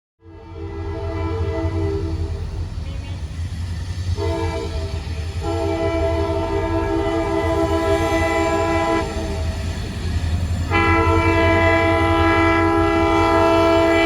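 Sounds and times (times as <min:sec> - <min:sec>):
locomotive air horn blasts: 0:00.2 - 0:02.4, 0:04.2 - 0:09.4, 0:10.7 - 0:14.0
locomotive engine rumbling: 0:00.3 - 0:14.0.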